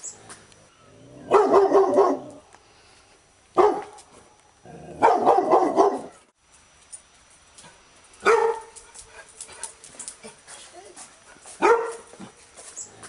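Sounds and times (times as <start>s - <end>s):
dog barking: 1.3s - 2.4s, 3.6s - 4.0s, 5.0s - 6.2s, 8.2s - 8.8s, 11.6s - 12.1s.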